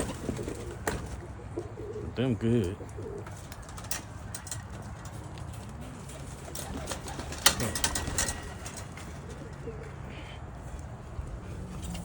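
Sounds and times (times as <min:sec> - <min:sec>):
pigeons cooing: 0:00.0 - 0:12.0
sharp clicks and rustles: 0:03.0 - 0:09.6.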